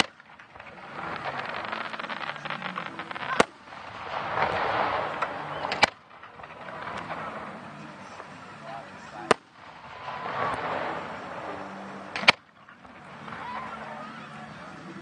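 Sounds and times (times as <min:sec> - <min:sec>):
fireworks crackling: 0:00.0 - 0:15.0
sharp firework bang: 0:00.9 - 0:08.5, 0:09.1 - 0:12.5.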